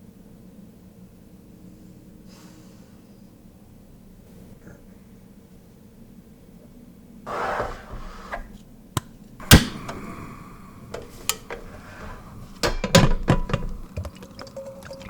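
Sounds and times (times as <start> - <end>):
metal ringing: 9.4 - 13.9
cookware knocking and clinking: 10.9 - 14.1.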